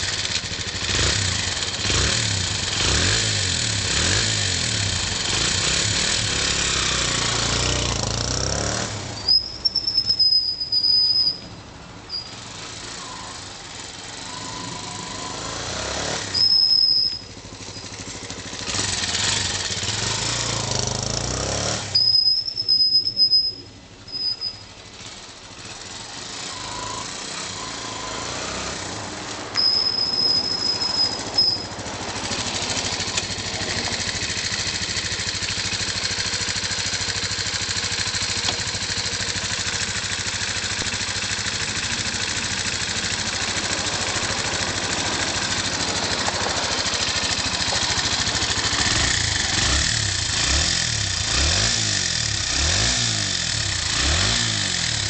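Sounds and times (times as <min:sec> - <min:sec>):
motorcycle engine idling: 0:00.0 - 0:08.5, 0:16.3 - 0:21.2, 0:22.0 - 0:28.0, 0:29.5 - 0:55.0
motorcycle engine revving: 0:00.0 - 0:11.4, 0:12.1 - 0:55.0.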